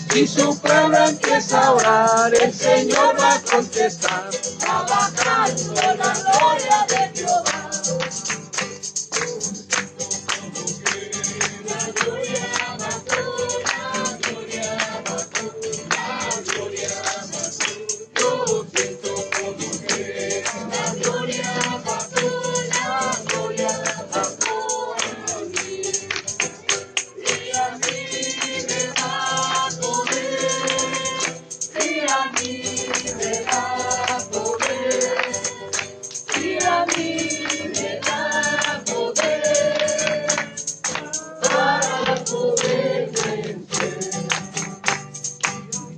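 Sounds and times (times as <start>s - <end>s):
group singing a worship chorus: 0.0s - 8.4s, 9.2s - 44.9s
tambourine beat: 0.0s - 45.9s.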